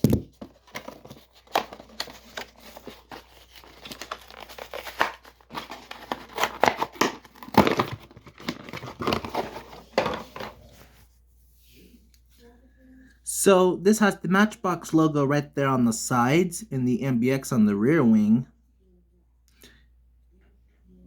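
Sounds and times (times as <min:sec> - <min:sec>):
packaging tearing and crinkling: 0:00.0 - 0:10.0.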